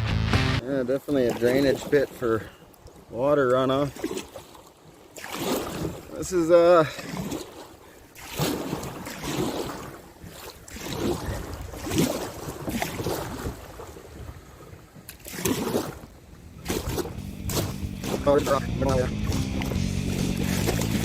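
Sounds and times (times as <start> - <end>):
paddle splashing in water: 1.1 - 21.0
wind buffeting microphone: 15.8 - 21.0.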